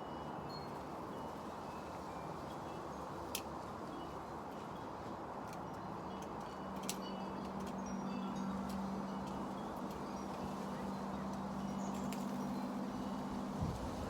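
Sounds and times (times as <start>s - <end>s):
wind on microphone: 13.5s - 14.0s.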